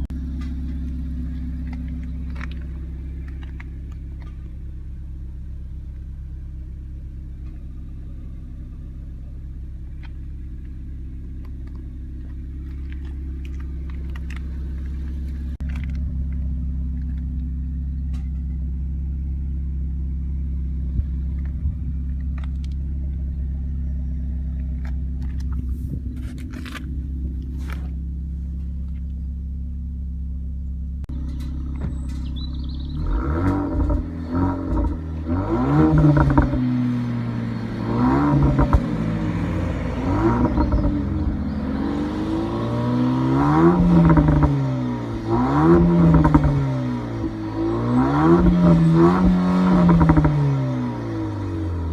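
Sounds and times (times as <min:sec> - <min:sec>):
car engine idling: 0:00.0 - 0:51.9
engine revving: 0:31.1 - 0:51.9.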